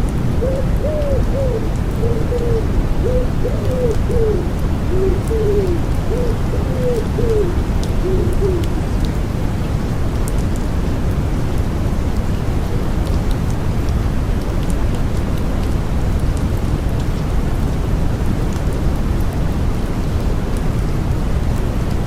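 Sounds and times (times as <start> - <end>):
steady white-noise rush: 0.0 - 22.0
pigeon cooing: 0.4 - 8.7
raindrop ticks: 0.8 - 2.6, 3.5 - 17.8.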